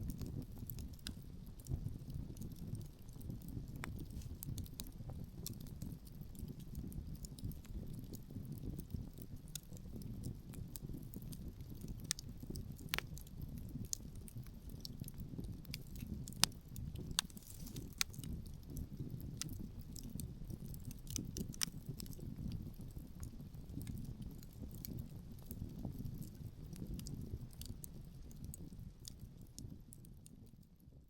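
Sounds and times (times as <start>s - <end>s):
wood fire crackling: 0.0s - 30.6s
low rumble of wind: 0.0s - 31.0s
sharp pops from fire: 2.4s - 5.9s, 11.8s - 22.6s.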